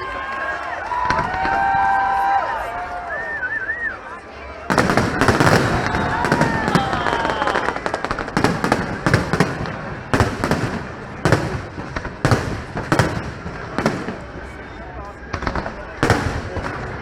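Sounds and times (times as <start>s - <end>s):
firework crackling: 0.8s - 17.0s.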